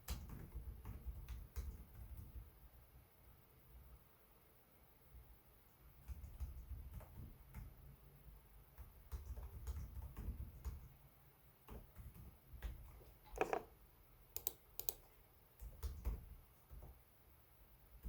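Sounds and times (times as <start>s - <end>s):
laptop keyboard clicks: 14.4s - 15.0s.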